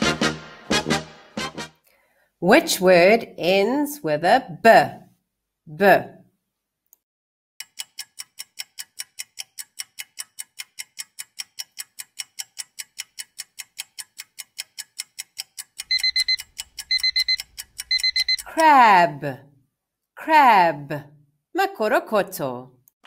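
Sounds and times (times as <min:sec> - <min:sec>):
clock ticking rapidly: 0:07.6 - 0:18.8
alarm clock beeping: 0:15.8 - 0:18.8.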